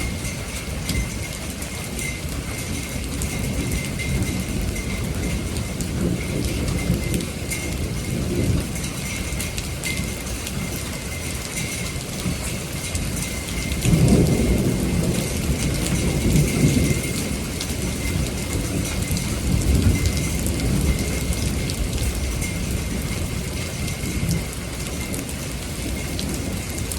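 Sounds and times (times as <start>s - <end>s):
heavy rain pattering: 0.0s - 26.9s
rolling thunder: 13.6s - 25.2s.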